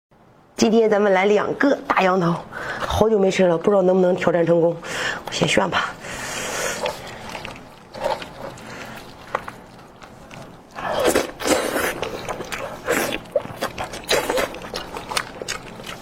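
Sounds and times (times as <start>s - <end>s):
biting and wet chewing: 5.2s - 16.0s.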